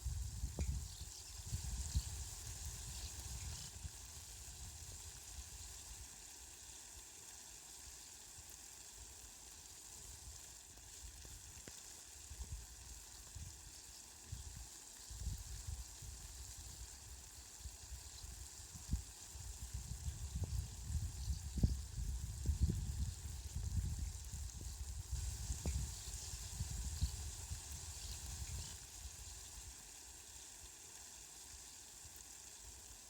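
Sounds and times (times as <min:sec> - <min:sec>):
faint rain hiss: 0:00.0 - 0:33.0.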